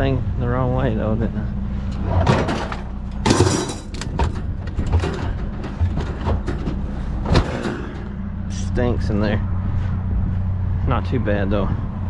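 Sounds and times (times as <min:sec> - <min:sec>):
vehicle engine idling: 0:00.0 - 0:12.0
loud clatter: 0:02.0 - 0:08.1
trash rustling and knocking: 0:02.0 - 0:08.2.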